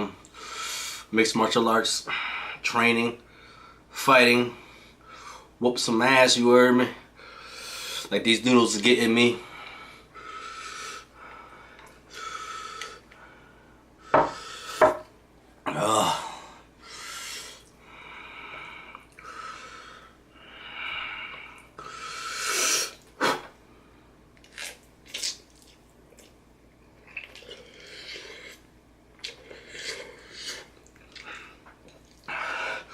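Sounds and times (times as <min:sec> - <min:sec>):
person breathing hard: 0:15.8 - 0:23.5, 0:32.3 - 0:32.9.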